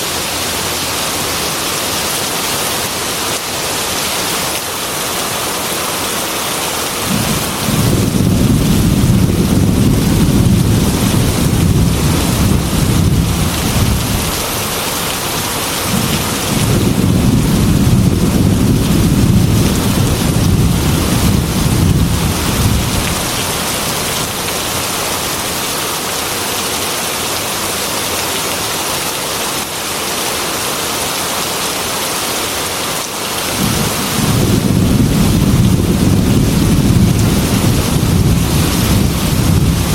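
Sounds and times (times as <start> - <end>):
heavy rain on a window: 0.0 - 39.9
low thunder rumbles: 7.1 - 24.4, 33.5 - 39.9.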